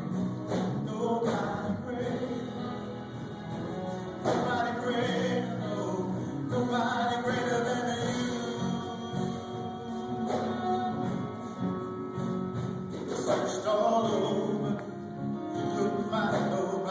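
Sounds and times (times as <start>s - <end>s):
group singing gospel song: 0.5s - 11.8s.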